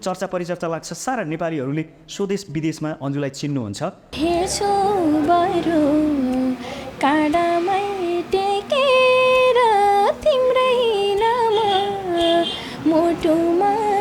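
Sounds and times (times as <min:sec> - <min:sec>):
woman singing folk song: 0:04.2 - 0:14.0.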